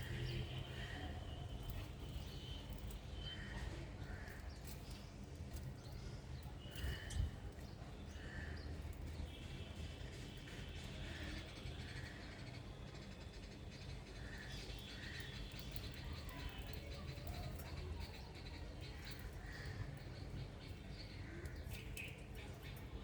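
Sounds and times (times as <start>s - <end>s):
small birds chirping: 0.0s - 9.7s, 10.6s - 23.0s.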